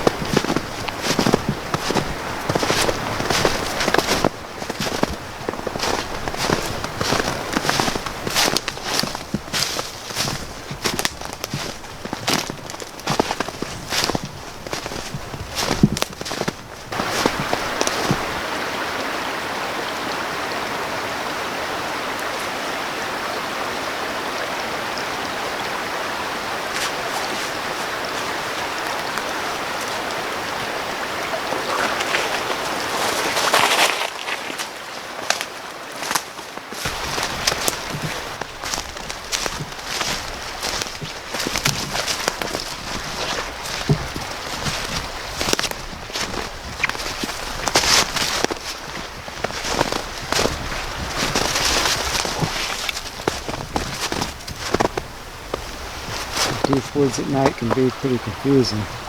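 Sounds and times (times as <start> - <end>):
faint sleet ticks: 0.0 - 18.3, 34.4 - 59.0
footsteps through dry leaves: 0.0 - 18.3, 31.7 - 56.8
rain and sleet falling: 0.0 - 59.0.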